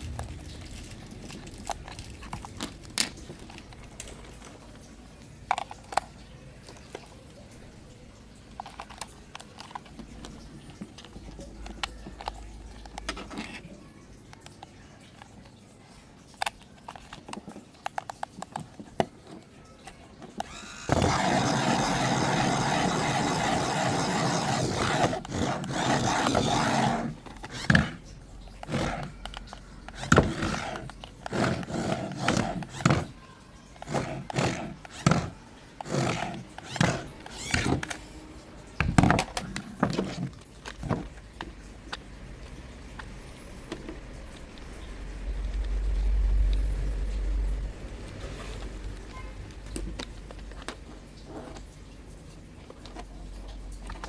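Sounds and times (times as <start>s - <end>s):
plastic clicks and handling knocks: 16.3s - 33.2s, 33.8s - 38.1s, 38.8s - 42.1s.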